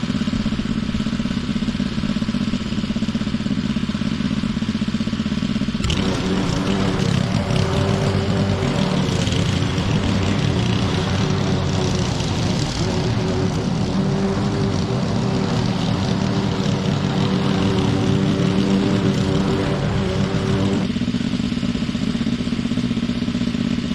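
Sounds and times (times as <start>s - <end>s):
small petrol engine running: 0.0s - 23.9s.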